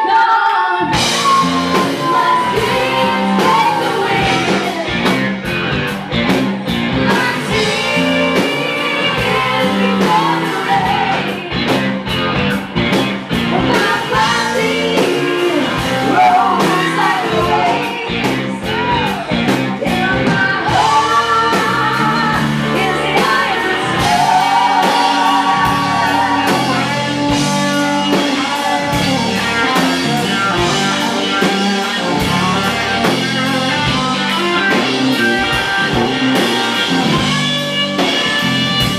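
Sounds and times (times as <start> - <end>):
woman singing: 0.0 - 4.8, 7.0 - 11.5, 13.5 - 27.0
electric guitar: 0.7 - 38.9
drum kit: 0.8 - 38.9.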